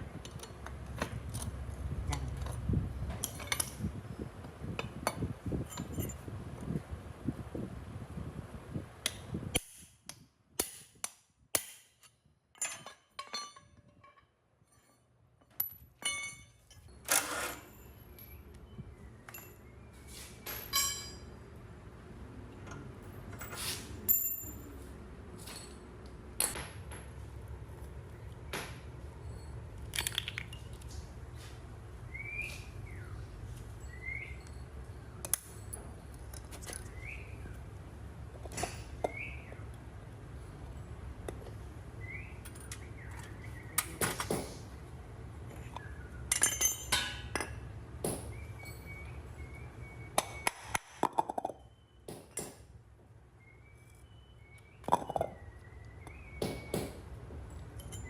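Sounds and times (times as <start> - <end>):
metal parts clinking: 0.2 - 3.8, 4.8 - 6.2, 12.5 - 18.5, 20.4 - 21.3, 29.2 - 31.0, 45.5 - 47.6, 57.5 - 58.0.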